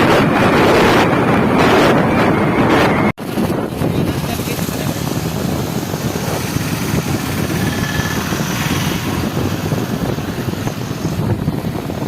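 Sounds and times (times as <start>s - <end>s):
motorcycle engine running: 3.2s - 12.0s.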